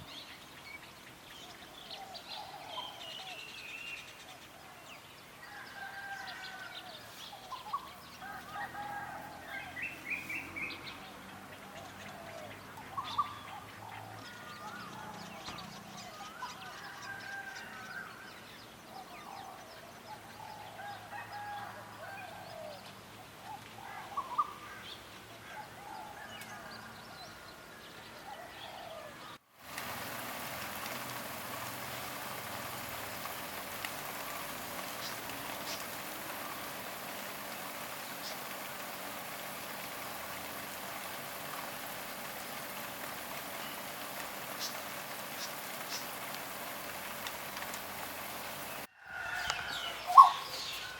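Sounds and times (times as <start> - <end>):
birds warbling: 0.0 - 21.6, 28.0 - 50.9
steady hiss: 29.6 - 50.9
scattered bird chirps: 49.4 - 50.9.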